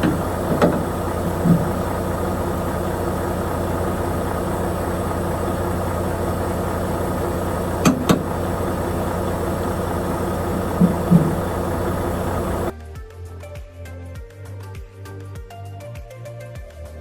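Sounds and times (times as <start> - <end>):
diesel truck engine running: 0.0 - 12.7.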